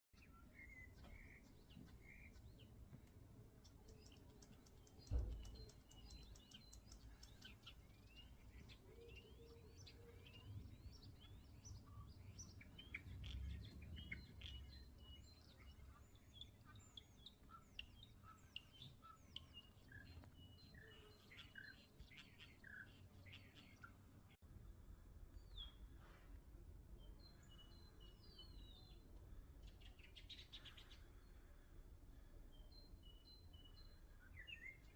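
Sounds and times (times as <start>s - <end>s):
thump: 5.1s - 5.6s.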